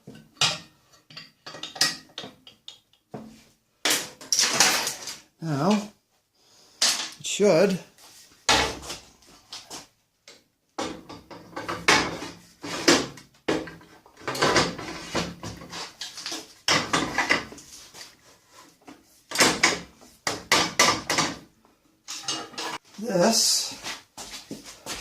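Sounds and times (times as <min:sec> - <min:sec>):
metal parts clunking and knocking: 0:00.0 - 0:03.0, 0:03.8 - 0:05.2, 0:10.8 - 0:17.6, 0:19.3 - 0:21.5, 0:22.1 - 0:22.8.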